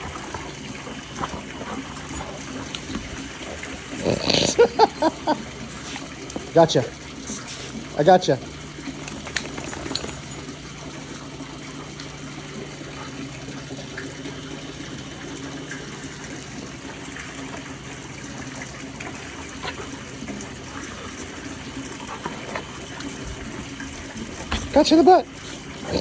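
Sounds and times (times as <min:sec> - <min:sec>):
water gushing: 0:00.0 - 0:26.0.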